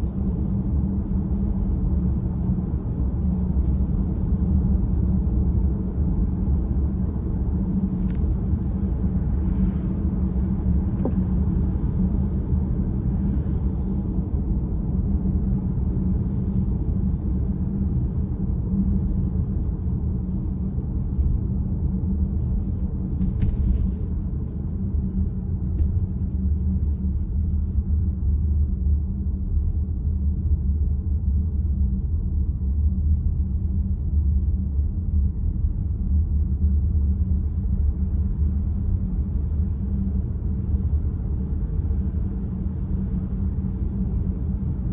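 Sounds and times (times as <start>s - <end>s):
car cabin road rumble: 0.0s - 44.9s.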